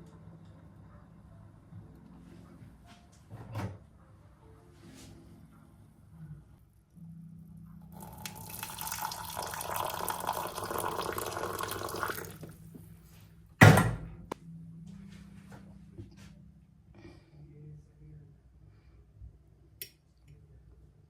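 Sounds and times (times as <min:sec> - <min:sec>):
water running from a tap: 0:08.0 - 0:12.5.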